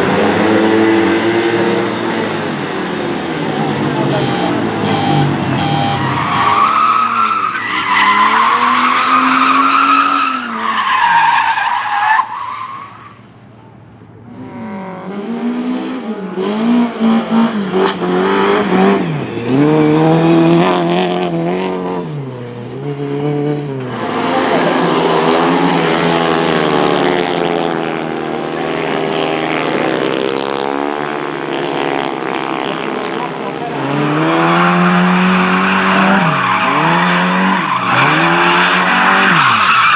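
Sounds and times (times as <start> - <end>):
race car engines revving: 0.0 - 39.9
tyre squeal: 3.7 - 11.5.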